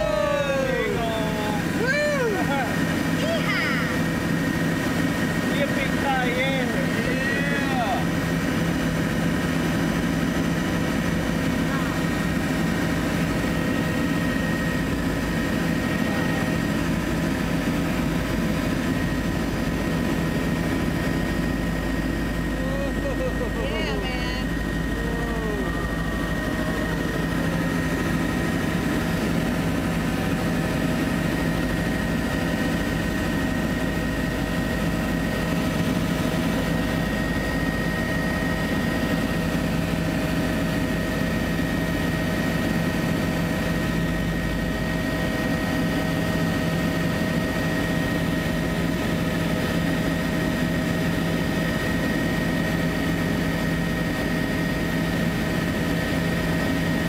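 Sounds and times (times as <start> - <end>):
helicopter rotor and engine drone: 0.0 - 57.0
high turbine whine: 0.0 - 57.0.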